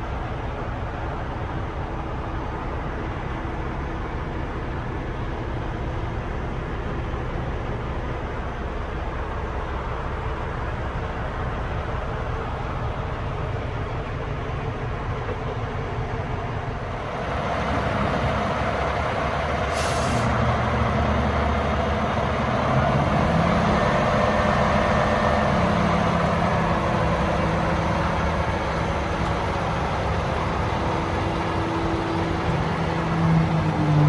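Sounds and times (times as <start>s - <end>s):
diesel truck engine running: 0.0s - 34.0s
sharp hiss of air: 19.7s - 20.4s.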